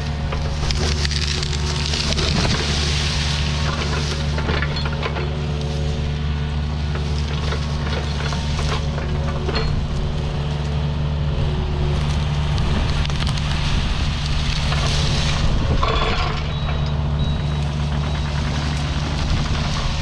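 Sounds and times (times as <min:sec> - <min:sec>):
branches crackling and snapping: 0:00.0 - 0:20.0
diesel engine under load: 0:00.0 - 0:20.0.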